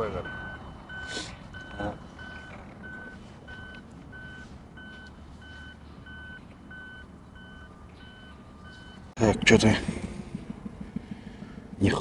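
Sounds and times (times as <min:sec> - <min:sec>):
electronic warning beeps: 0:00.0 - 0:09.1
faint lower-pitched beep: 0:00.2 - 0:09.1.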